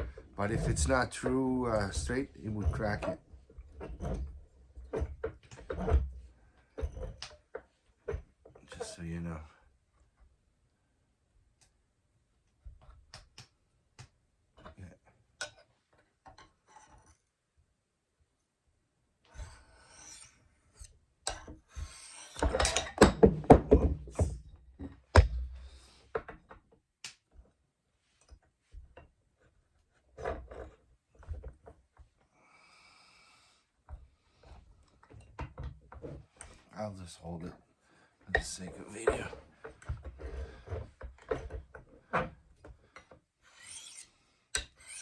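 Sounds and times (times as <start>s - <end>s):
knife scraping on sharpening rod: 0.4s - 0.9s, 19.7s - 20.9s, 21.8s - 22.5s, 43.5s - 45.0s.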